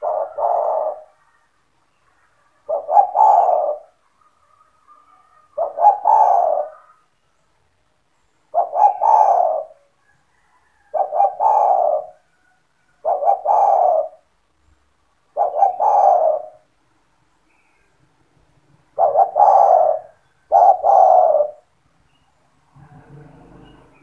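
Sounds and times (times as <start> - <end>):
dove cooing: 0.0 - 7.1, 8.5 - 14.3, 15.3 - 16.7, 18.8 - 21.7.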